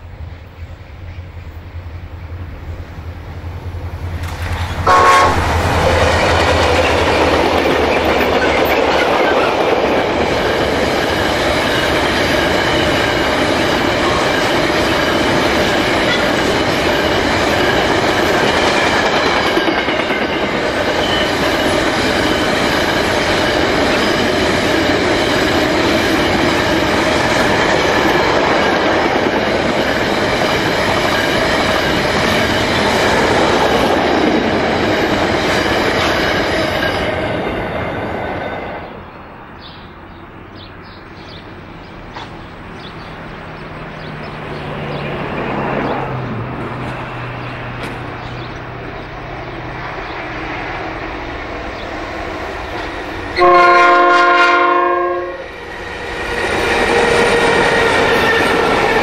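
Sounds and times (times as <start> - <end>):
locomotive engines droning: 0.0 - 59.0
wheels clickety-clack: 4.1 - 4.9, 6.0 - 38.0, 43.9 - 49.1
train horn blast: 4.8 - 6.3, 53.4 - 55.6.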